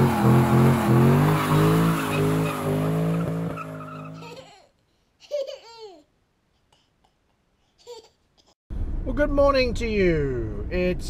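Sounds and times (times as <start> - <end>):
car engine revving: 0.0 - 4.2.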